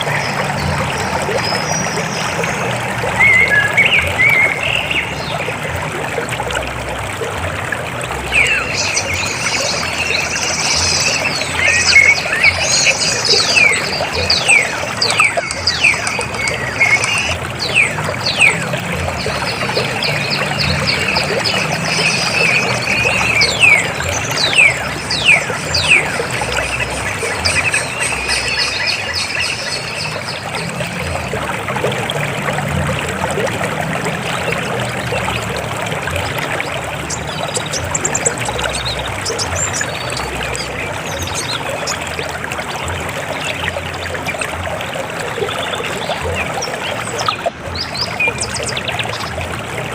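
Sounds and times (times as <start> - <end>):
river water flowing: 0.0 - 49.9.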